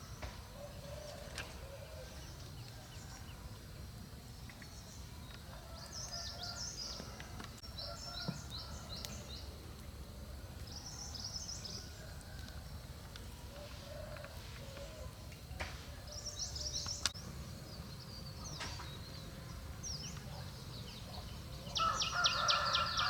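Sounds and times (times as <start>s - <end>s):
small songbird chirping: 16.0s - 23.0s.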